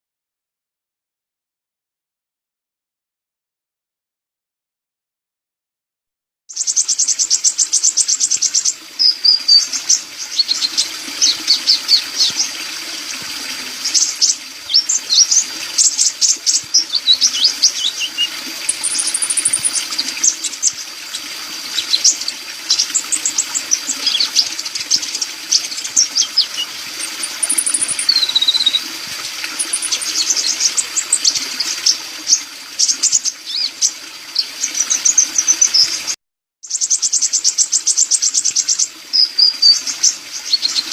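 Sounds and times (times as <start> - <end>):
bird singing chips and trills: 6.5 - 12.4, 13.9 - 20.8, 21.8 - 28.8, 29.6 - 36.0, 36.6 - 40.9.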